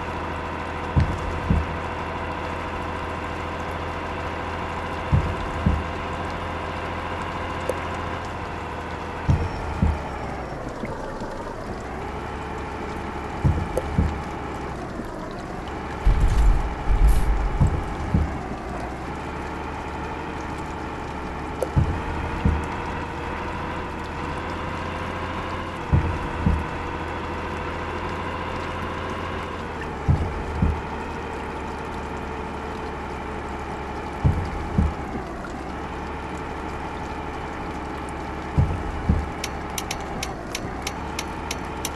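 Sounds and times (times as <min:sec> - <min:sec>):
truck engine humming: 0:00.0 - 0:41.9
short low thumps: 0:00.1 - 0:03.2, 0:04.0 - 0:08.0, 0:08.6 - 0:10.5, 0:13.3 - 0:14.7, 0:15.9 - 0:18.9, 0:21.6 - 0:27.8, 0:29.9 - 0:31.1, 0:34.2 - 0:35.6, 0:38.5 - 0:41.8.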